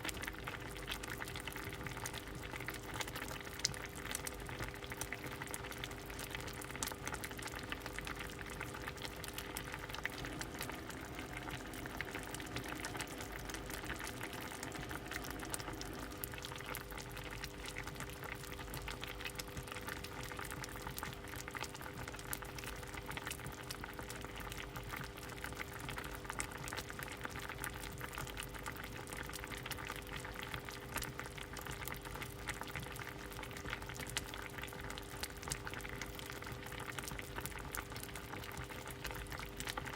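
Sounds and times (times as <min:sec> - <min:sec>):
soup bubbling: 0:00.0 - 0:39.9
steady hum: 0:06.5 - 0:20.0.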